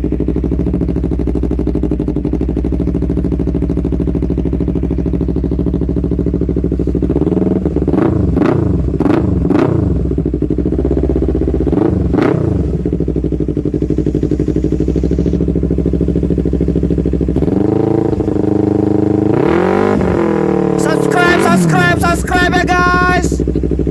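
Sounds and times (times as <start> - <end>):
motorcycle engine idling: 0.0 - 21.1, 22.5 - 23.9
motorcycle throttle revs: 6.6 - 20.8.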